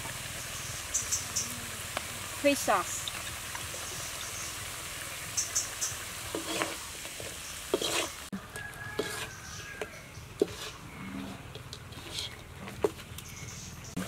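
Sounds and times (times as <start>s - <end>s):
meat sizzling in a wok: 0.0s - 10.7s
metal spatula scraping a pan: 6.2s - 8.3s, 8.9s - 13.0s.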